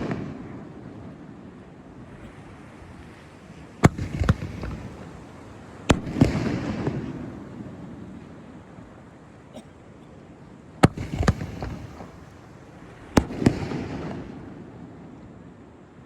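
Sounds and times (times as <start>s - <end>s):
fireworks bangs: 0.0s - 1.4s, 3.6s - 8.2s, 10.8s - 14.8s
fireworks rumble: 0.0s - 9.3s, 10.2s - 15.8s.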